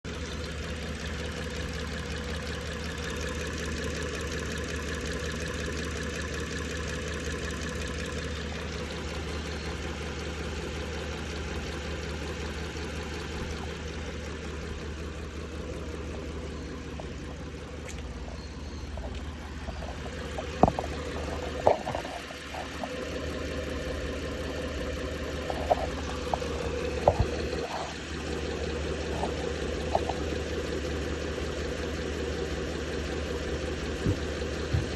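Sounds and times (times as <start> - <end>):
engine idling with tick: 0.0 - 34.9
sharp engine knocks: 18.9 - 23.0, 25.4 - 27.6, 33.9 - 34.9.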